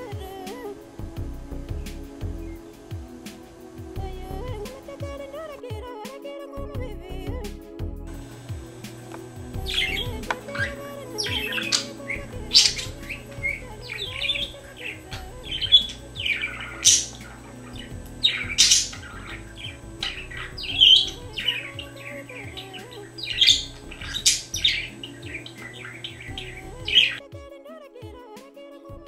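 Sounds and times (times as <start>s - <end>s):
steady low background: 0.0s - 5.6s, 6.6s - 27.2s
budgerigar chirping and squawking: 9.7s - 27.2s.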